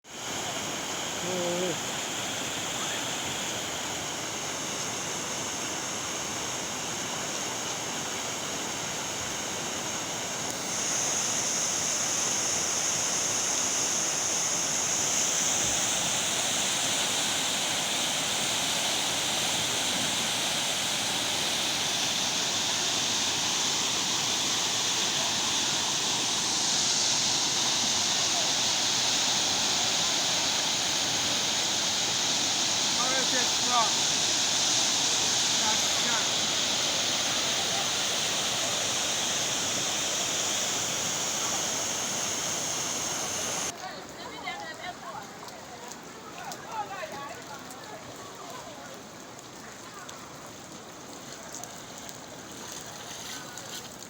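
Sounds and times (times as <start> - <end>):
heavy rain pouring: 12.0 - 43.8.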